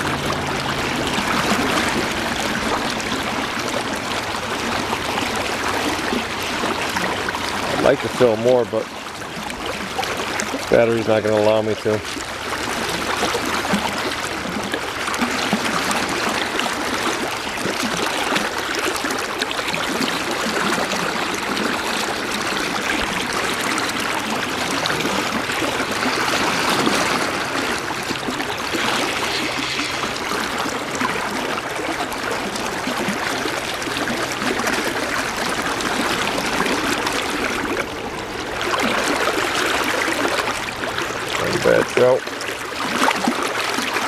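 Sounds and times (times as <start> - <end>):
river rushing: 0.0 - 44.0.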